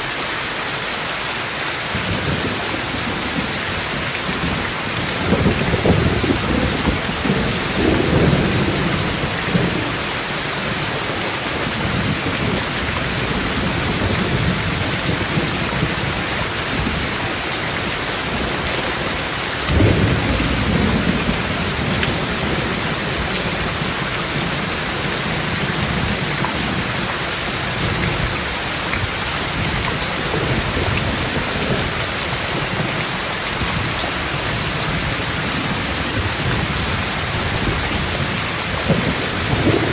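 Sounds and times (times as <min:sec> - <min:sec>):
heavy rain: 0:00.0 - 0:39.9
thunder rumbling: 0:02.0 - 0:39.9
sharp thunderclap: 0:05.2 - 0:10.0, 0:19.7 - 0:22.8, 0:37.5 - 0:39.9.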